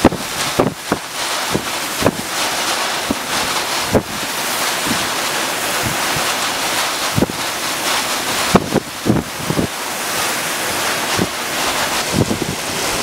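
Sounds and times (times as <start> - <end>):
rushing water: 0.0 - 13.0
storm wind: 0.0 - 13.0
wind gusts thudding on microphone: 0.0 - 13.0.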